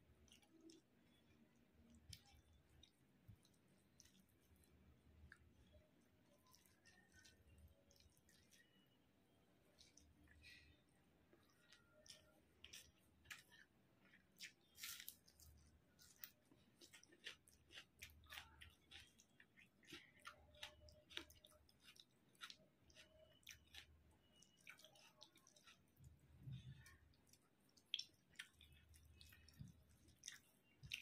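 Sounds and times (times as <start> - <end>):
close-up chewing: 0.0 - 9.0, 9.6 - 31.0
fingers mixing rice: 11.3 - 31.0.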